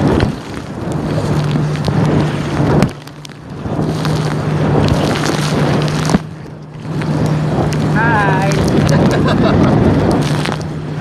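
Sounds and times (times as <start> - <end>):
boat engine running: 0.0 - 11.0
water splashing: 0.0 - 11.0
wind buffeting: 0.0 - 11.0.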